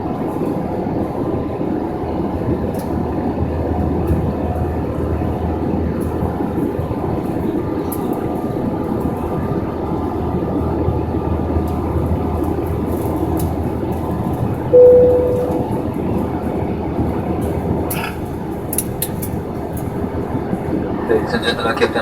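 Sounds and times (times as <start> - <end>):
cabin chime: 14.8 - 15.9.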